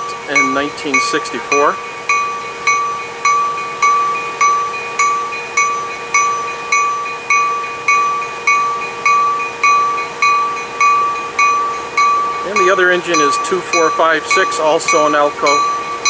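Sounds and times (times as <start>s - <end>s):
railroad bell ringing: 0.0s - 16.0s
steady hum: 0.0s - 16.0s.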